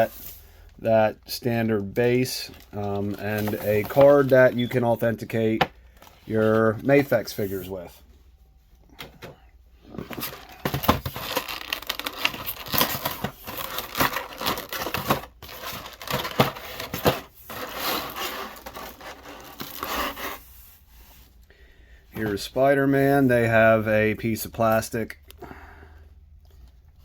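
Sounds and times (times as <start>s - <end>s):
plastic packaging crinkling: 1.8s - 6.8s, 10.0s - 20.2s.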